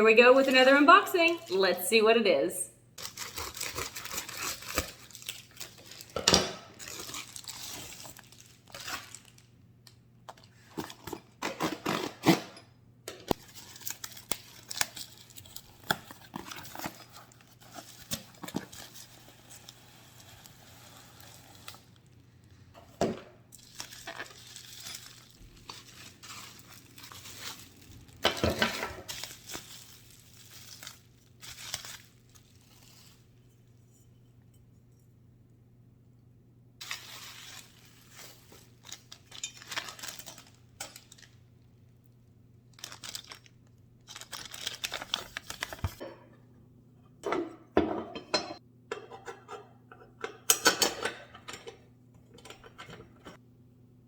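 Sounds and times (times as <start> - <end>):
packaging crinkling and tearing: 3.0 - 12.5, 13.3 - 22.6, 23.6 - 33.3, 36.8 - 46.0.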